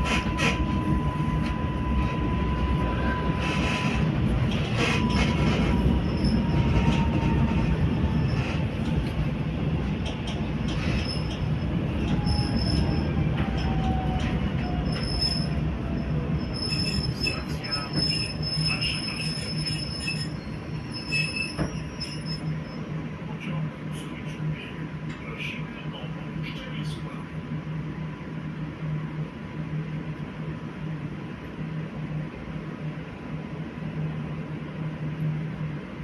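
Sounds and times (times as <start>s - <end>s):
high wheel squeal: 0.0s - 8.8s, 10.7s - 22.9s
train wheels rumbling on rails: 0.0s - 36.0s.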